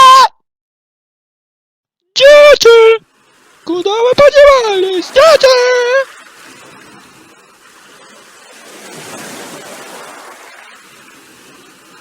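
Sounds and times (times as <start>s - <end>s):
sea surf waves: 2.2s - 12.0s.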